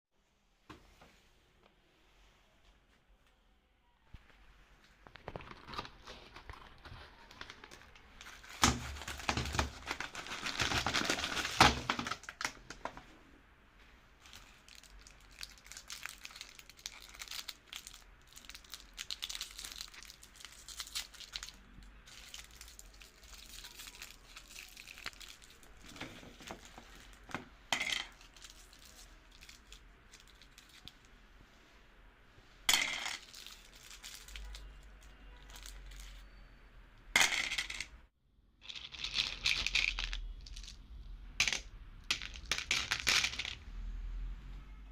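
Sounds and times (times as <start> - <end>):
candies crunching in meat grinder: 8.5 - 12.4.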